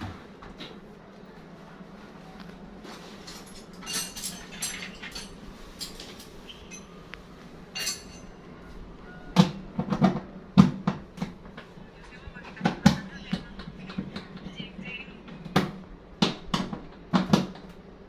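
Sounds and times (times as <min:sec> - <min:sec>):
washing machine parts clattering: 0:02.9 - 0:07.0, 0:07.7 - 0:08.4.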